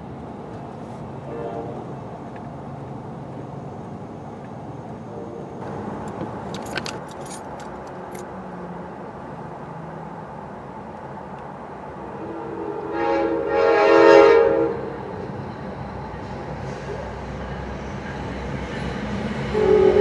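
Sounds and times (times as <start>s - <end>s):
road traffic rumble: 0.0s - 20.0s
light clicks and jingles: 6.0s - 8.3s.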